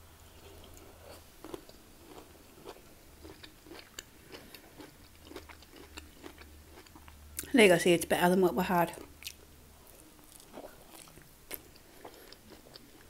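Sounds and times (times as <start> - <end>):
low steady hum: 0.0 - 13.0
wet chewing clicks: 0.4 - 7.5.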